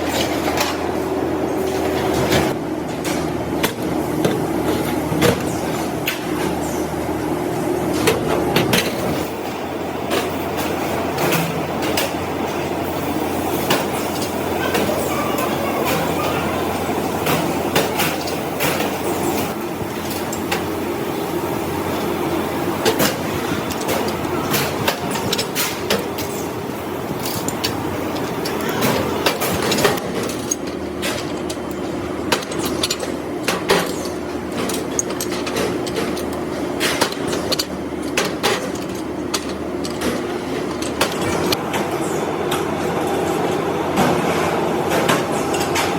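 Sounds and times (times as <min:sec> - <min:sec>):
workshop machinery humming: 0:00.0 - 0:45.9
knocks and clinks of hard parts: 0:07.9 - 0:41.8.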